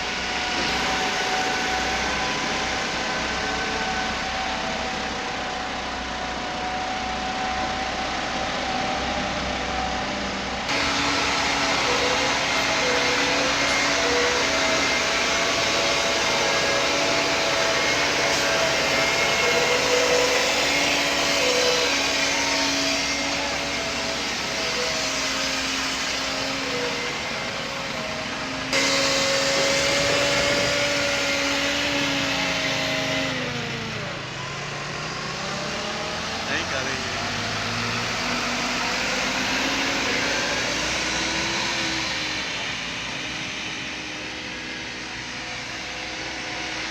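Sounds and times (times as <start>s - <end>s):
heavy vehicle engine running: 0.0s - 46.9s.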